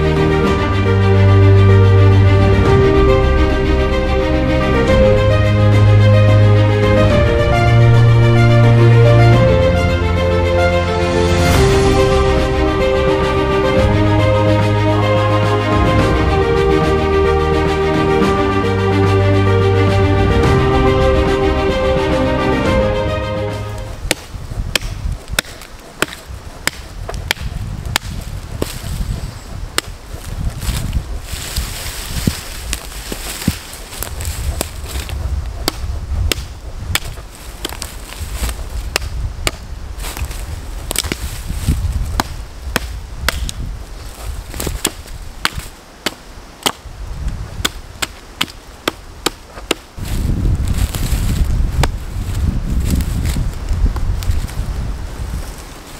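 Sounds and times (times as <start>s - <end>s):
music: 0.0s - 24.0s
low rumbling wind: 0.0s - 55.9s
hand tool chopping: 24.0s - 28.8s, 32.7s - 37.9s, 42.2s - 43.6s.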